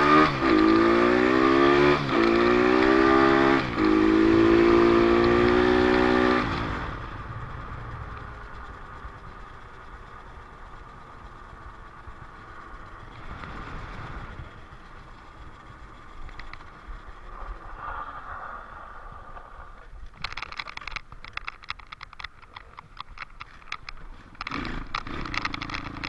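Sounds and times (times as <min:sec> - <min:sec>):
dirt bike engine revving: 0:00.0 - 0:07.3, 0:11.3 - 0:19.8, 0:24.0 - 0:26.0.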